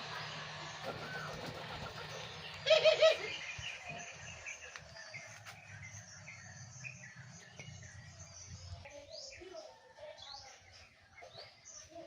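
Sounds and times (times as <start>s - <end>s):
small birds chirping: 0.0s - 12.0s
dove cooing: 0.8s - 3.5s.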